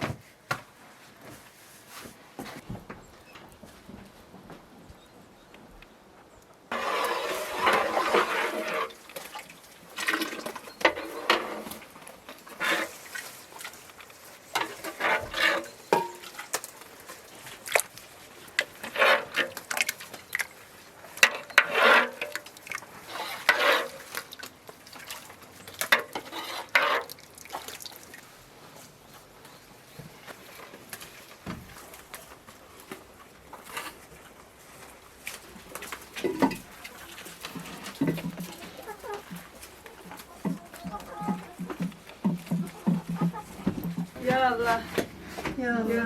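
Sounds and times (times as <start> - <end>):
liquid sloshing: 6.7 - 28.4
dishes and utensils clinking: 14.6 - 16.5.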